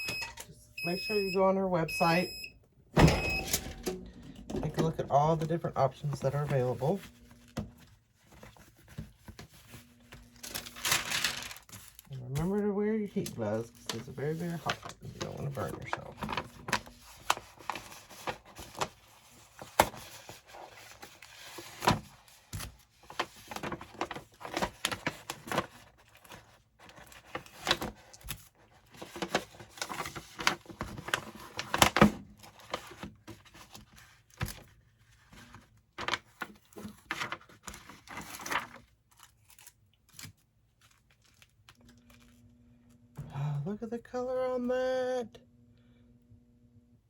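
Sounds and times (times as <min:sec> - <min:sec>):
paper rustling and tearing: 0:05.1 - 0:42.3.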